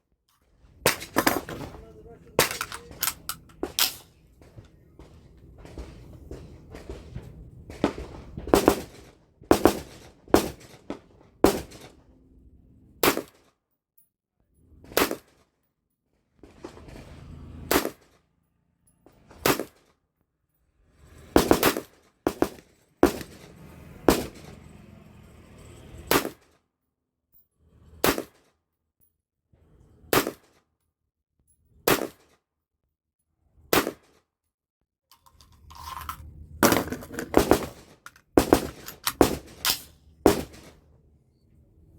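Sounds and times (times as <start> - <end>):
rifle shots: 0.8 - 4.1, 7.7 - 12.0, 17.7 - 18.1, 21.4 - 23.5, 24.1 - 24.5, 36.6 - 40.8.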